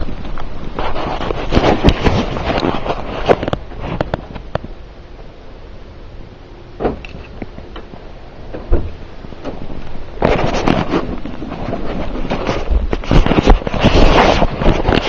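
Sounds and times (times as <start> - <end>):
rustling: 0.0 - 4.8, 6.9 - 15.0
sharp clicks and knocks: 0.0 - 4.8, 6.8 - 15.0
low car cabin noise: 0.0 - 15.0
thumps: 6.8 - 15.0.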